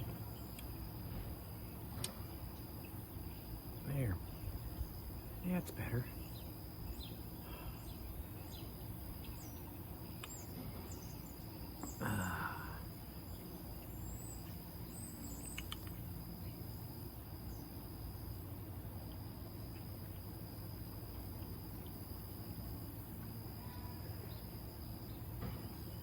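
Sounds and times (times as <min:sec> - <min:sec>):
birds chirping: 0:00.0 - 0:17.8
insects droning: 0:00.0 - 0:26.0.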